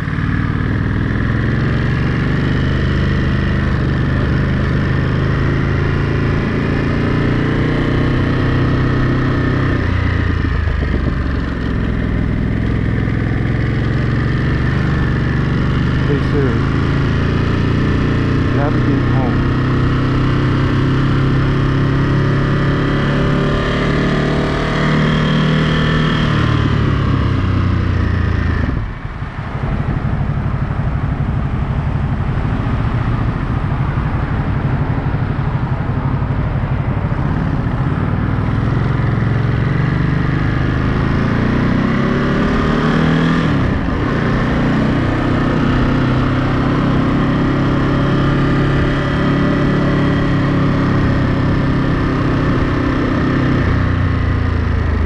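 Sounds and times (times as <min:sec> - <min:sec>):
motorcycle engine shifting gears: 0:00.0 - 0:55.0.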